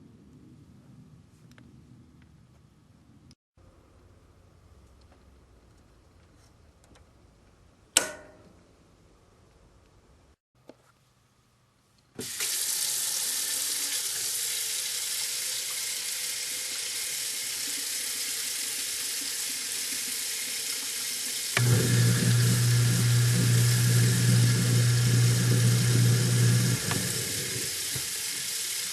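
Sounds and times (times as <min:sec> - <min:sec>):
switch click: 0:08.0 - 0:08.4
tap water running into sink: 0:12.2 - 0:28.9
garbage disposal motor humming: 0:21.3 - 0:28.9.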